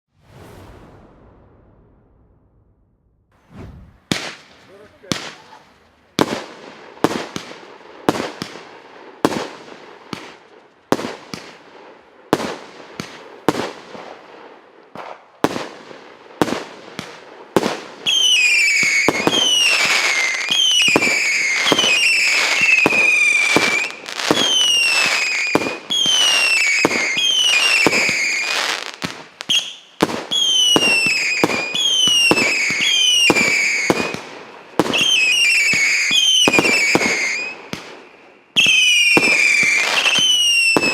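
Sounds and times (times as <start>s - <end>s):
fireworks whistling: 0.1s - 6.4s, 18.0s - 40.9s.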